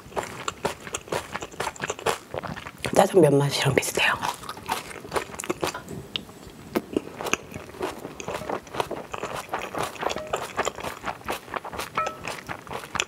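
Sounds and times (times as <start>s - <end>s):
wet chewing and mouth smacks: 0.0s - 3.0s, 4.2s - 13.0s
spoon scraping plate: 9.7s - 11.0s.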